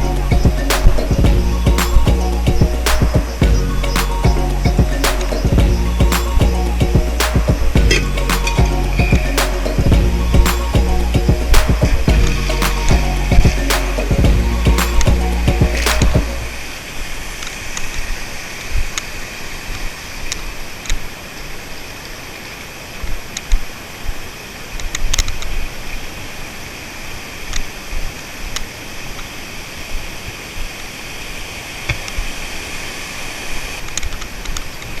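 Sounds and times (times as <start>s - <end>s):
sharp clicks: 15.7s - 16.4s.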